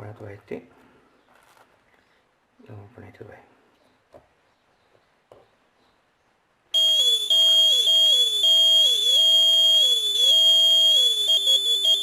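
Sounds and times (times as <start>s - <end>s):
piercing steady high tone: 6.8s - 12.0s.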